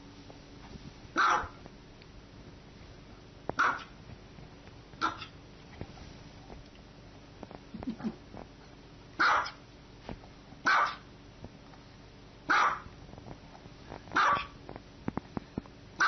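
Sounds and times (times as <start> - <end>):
small dog barking: 1.2 - 1.6, 3.6 - 4.0, 5.0 - 5.4, 9.2 - 9.6, 10.6 - 11.1, 12.5 - 12.9, 14.2 - 14.6.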